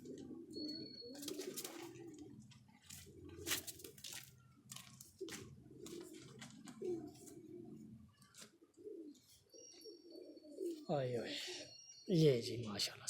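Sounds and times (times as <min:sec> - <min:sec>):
pigeons cooing: 0:00.0 - 0:04.1, 0:05.2 - 0:11.9.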